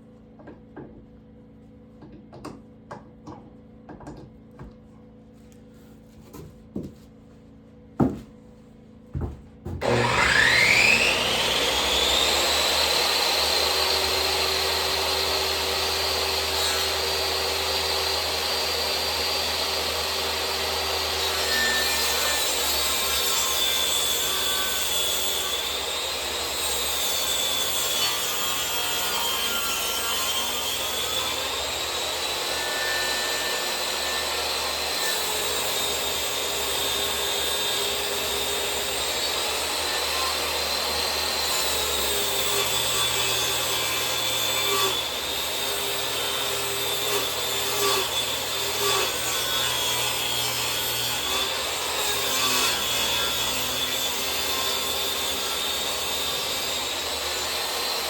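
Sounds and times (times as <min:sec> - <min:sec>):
power tool motor whine: 0:09.8 - 0:21.2.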